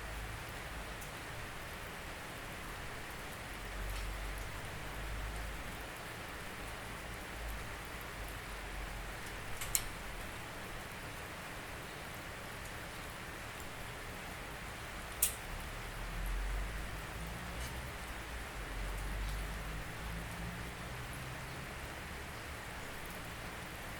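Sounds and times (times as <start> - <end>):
steady rain hiss: 0.0 - 23.9
raindrops ticking: 2.7 - 11.1, 15.0 - 21.5.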